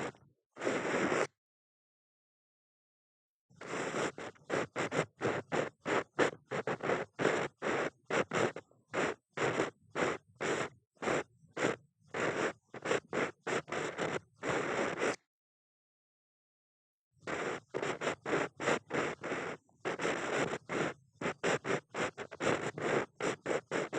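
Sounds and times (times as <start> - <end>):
ear pick scraping in ear: 3.6 - 15.2, 17.3 - 23.9.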